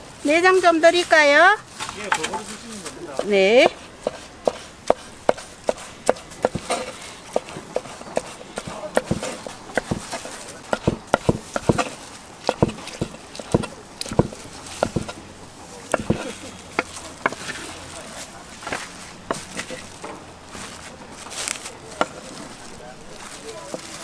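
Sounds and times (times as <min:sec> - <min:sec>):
knife chopping on cutting board: 0:03.2 - 0:15.2, 0:15.9 - 0:17.6.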